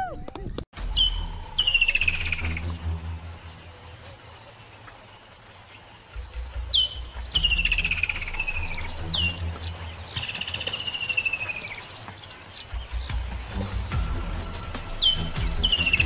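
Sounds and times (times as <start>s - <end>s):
bird whistle and falling trill: 0.8s - 2.7s, 6.7s - 9.4s, 14.4s - 16.0s.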